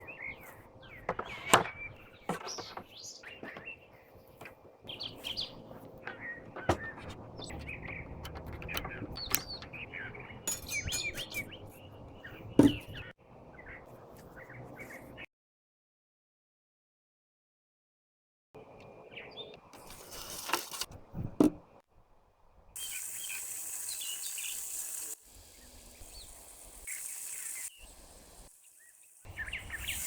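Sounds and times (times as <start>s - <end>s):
small birds chirping: 0.0s - 15.3s, 22.8s - 30.0s.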